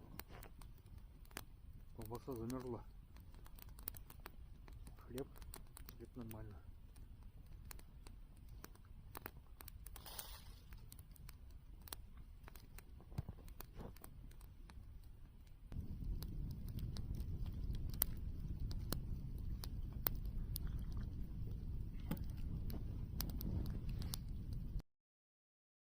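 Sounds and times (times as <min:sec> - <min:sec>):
campfire crackling and popping: 0:00.0 - 0:24.8
low rumble: 0:15.7 - 0:24.8.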